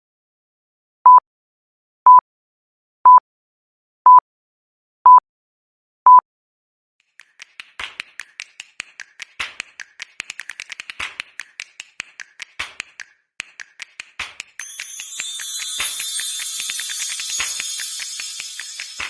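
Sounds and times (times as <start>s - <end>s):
quick sharp taps: 7.0s - 14.9s.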